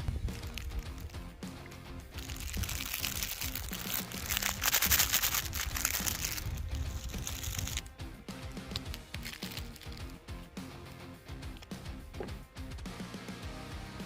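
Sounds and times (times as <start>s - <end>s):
background music: 0.0s - 14.0s
dense crackling noise: 2.1s - 7.9s.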